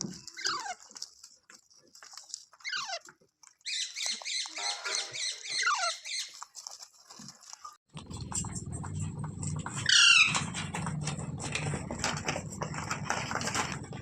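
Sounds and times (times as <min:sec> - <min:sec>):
parakeet high chatter: 0:02.6 - 0:03.0, 0:03.7 - 0:06.4
parakeet squawking: 0:03.7 - 0:06.3.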